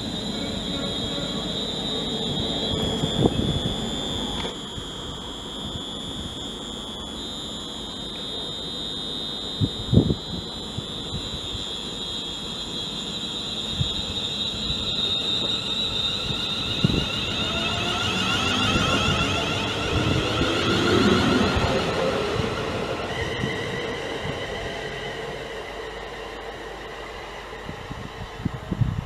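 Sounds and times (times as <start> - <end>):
high-pitched electrical whine: 0.0 - 29.0
whining tones sliding up: 0.0 - 29.0.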